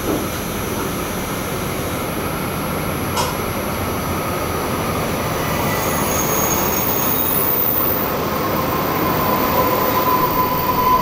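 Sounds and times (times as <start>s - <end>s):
electric train rumbling and hissing: 0.0s - 11.0s
thin high tone: 5.6s - 11.0s.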